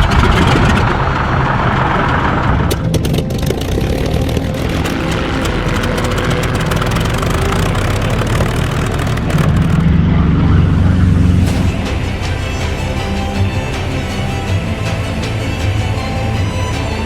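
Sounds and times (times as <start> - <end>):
propeller aircraft engine running: 0.0 - 17.0.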